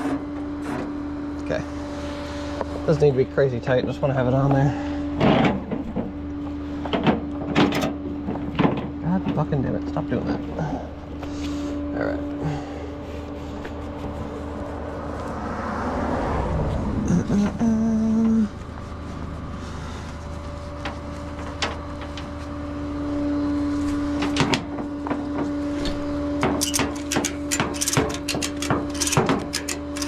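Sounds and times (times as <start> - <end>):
metallic clicks and knocks: 26.4 - 30.0.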